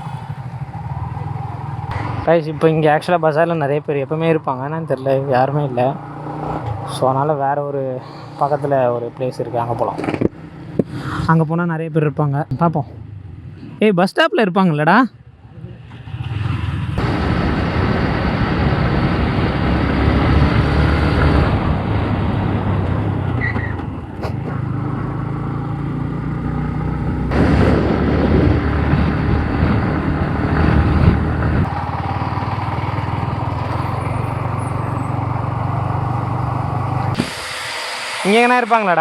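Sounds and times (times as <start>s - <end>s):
rushing wind noise: 16.0s - 24.7s, 27.2s - 39.0s
motorcycle engine running: 17.0s - 37.6s.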